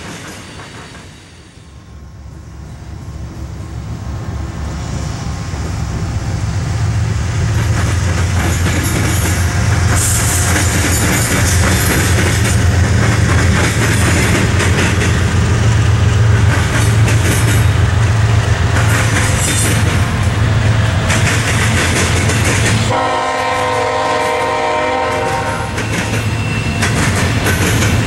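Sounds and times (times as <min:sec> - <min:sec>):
diesel locomotive rumble: 0:00.0 - 0:28.0
wheels clattering on rails: 0:07.1 - 0:28.0.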